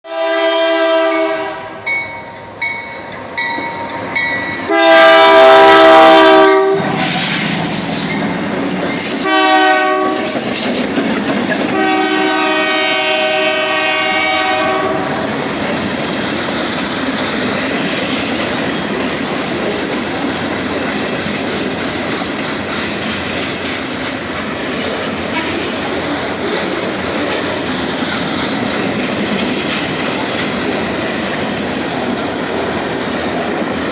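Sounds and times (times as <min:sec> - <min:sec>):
locomotive air horn blasts: 0:00.1 - 0:01.8, 0:04.7 - 0:07.2, 0:08.9 - 0:10.5, 0:11.7 - 0:15.1
train wheels clattering on rails: 0:01.8 - 0:33.9.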